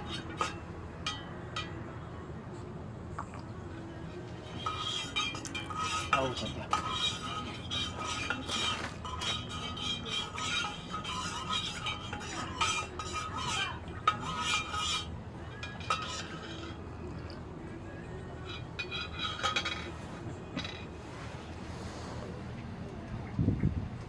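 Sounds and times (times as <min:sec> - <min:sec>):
metal spoon clinking on tableware: 0:04.4 - 0:17.4.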